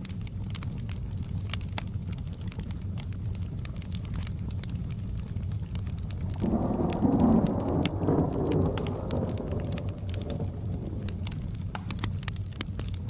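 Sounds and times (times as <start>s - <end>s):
fireplace crackling: 0.0s - 13.0s
rain falling: 0.0s - 13.0s
thunder rumbling: 5.8s - 12.9s.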